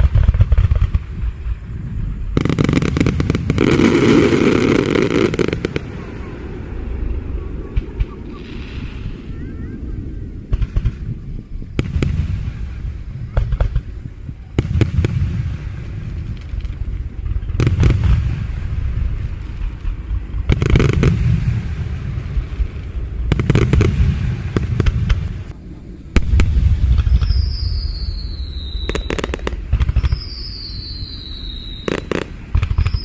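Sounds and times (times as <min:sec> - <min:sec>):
firework shells booming: 0:00.0 - 0:09.2, 0:10.4 - 0:25.5
firework crackling: 0:00.0 - 0:33.0
high falling whistle: 0:27.0 - 0:33.0.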